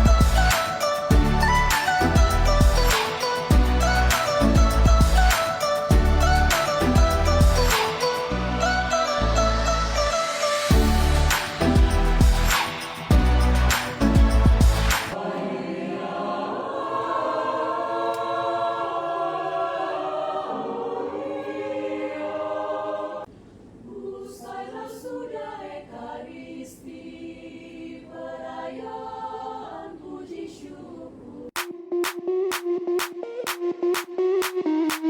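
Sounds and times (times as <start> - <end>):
choir singing unaccompanied: 0.0 - 31.7.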